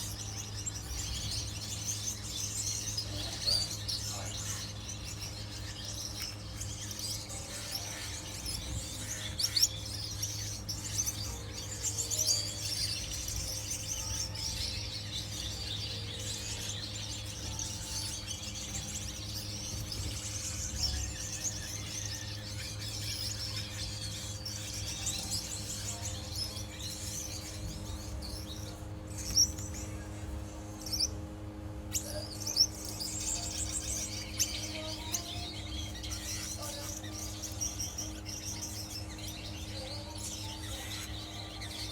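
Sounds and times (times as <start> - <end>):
finches chirping: 0.0 - 41.9
steady low hum: 0.0 - 41.9.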